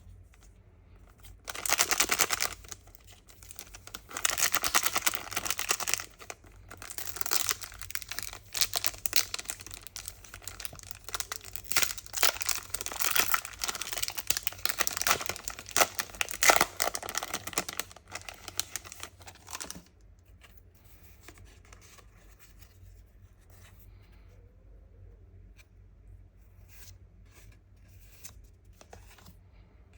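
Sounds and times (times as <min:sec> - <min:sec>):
foil wrappers tearing and crinkling: 0:01.4 - 0:19.9.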